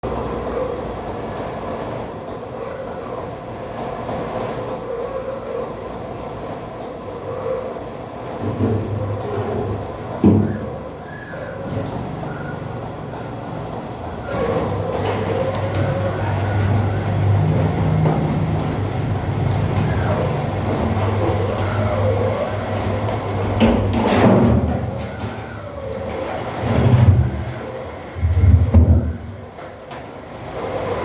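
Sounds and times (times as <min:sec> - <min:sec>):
cutter squealing on metal: 0:00.0 - 0:17.5.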